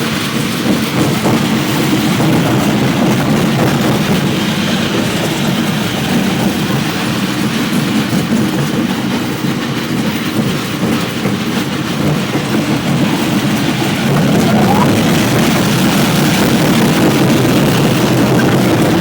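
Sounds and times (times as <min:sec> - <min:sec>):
high-speed train running: 0:00.0 - 0:19.0.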